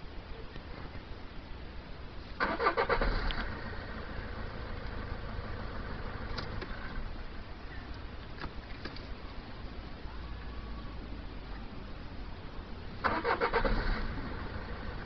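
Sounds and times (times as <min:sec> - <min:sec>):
car engine idling: 0:01.6 - 0:15.0
car starter cranking: 0:02.4 - 0:03.7, 0:13.0 - 0:14.7.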